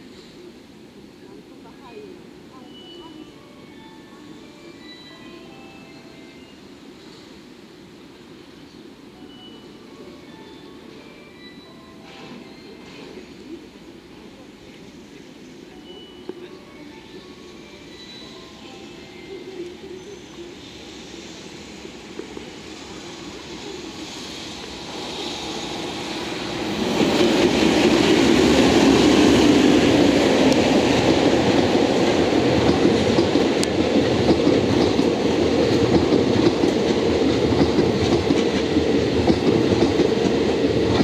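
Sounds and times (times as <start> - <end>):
freight train passing: 0.0 - 41.0
train wheels on rails: 10.3 - 41.0.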